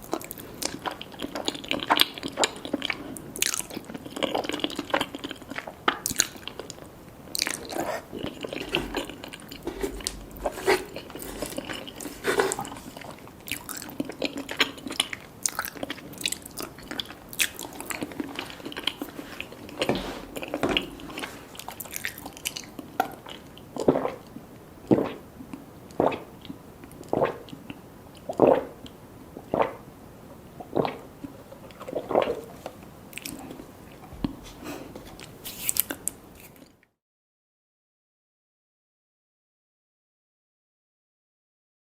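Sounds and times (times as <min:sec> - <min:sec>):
crunchy chewing: 0:00.0 - 0:24.2.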